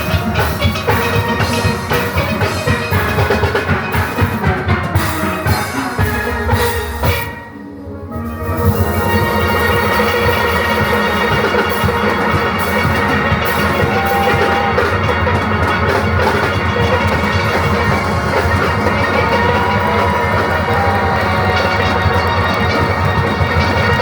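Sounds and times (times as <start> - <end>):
drums and percussion rhythm: 0.0 - 24.0
steel pan band playing: 0.0 - 24.0.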